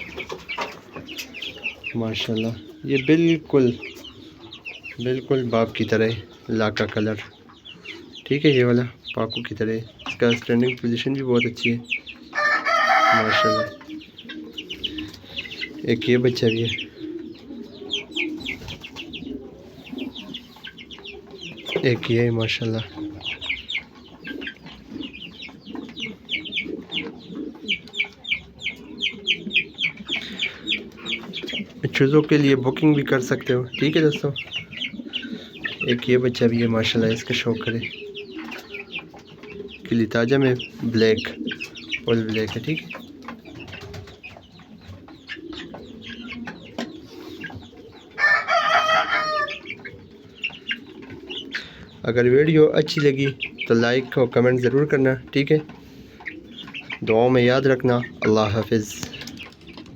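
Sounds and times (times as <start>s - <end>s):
chicks peeping: 0.0s - 59.9s
rooster crowing: 12.4s - 13.8s, 48.2s - 49.6s.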